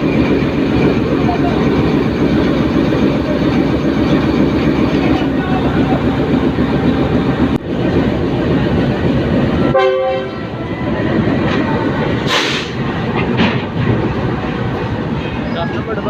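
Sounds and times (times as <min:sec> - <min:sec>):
train rumbling: 0:00.0 - 0:16.0
train horn blast: 0:09.6 - 0:10.6.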